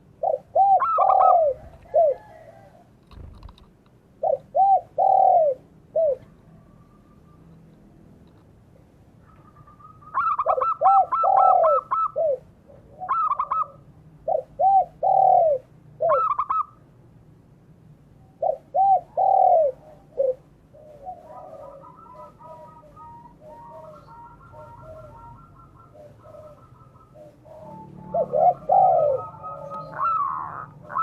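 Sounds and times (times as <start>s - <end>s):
dove cooing: 0.0s - 7.5s, 9.2s - 16.8s, 18.2s - 31.0s
bird chirping: 9.2s - 12.2s, 18.2s - 31.0s.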